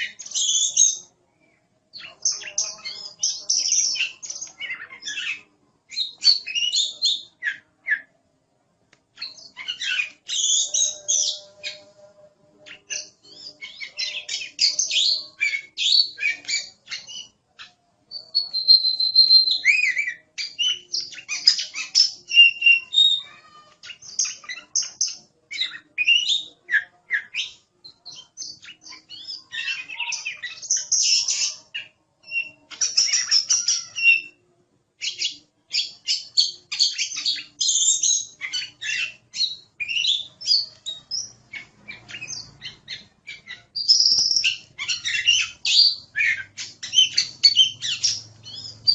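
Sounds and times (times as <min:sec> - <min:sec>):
bird singing whistles and chirps: 0:01.9 - 0:08.1, 0:09.2 - 0:34.4, 0:35.0 - 0:48.9.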